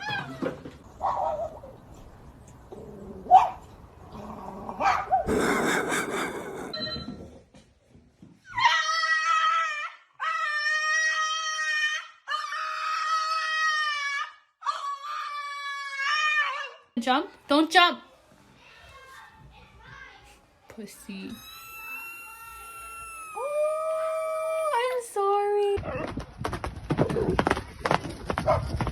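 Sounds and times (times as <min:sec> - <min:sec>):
dog howling: 0:21.4 - 0:24.9.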